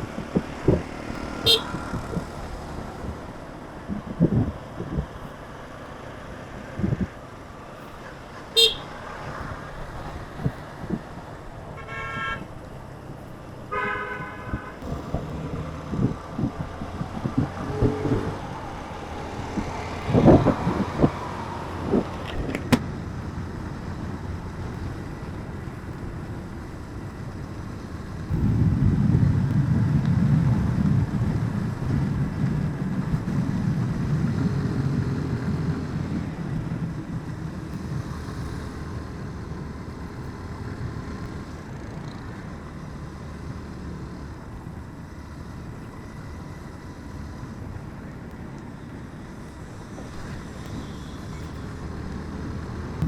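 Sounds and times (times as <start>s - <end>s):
low rumble of passing vehicle: 0.0s - 53.0s
road traffic: 0.0s - 53.0s
vehicle horn toots: 0.7s - 2.2s, 8.5s - 9.0s, 11.8s - 12.5s, 13.7s - 14.9s.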